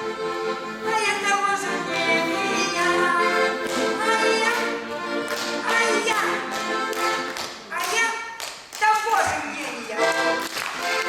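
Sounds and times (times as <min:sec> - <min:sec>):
accordion folk melody: 0:00.0 - 0:07.8, 0:09.5 - 0:11.0.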